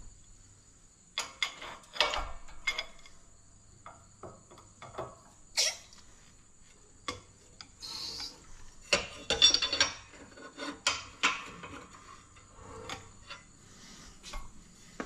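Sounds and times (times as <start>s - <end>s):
metal scraping and clinking: 8.1s - 13.6s.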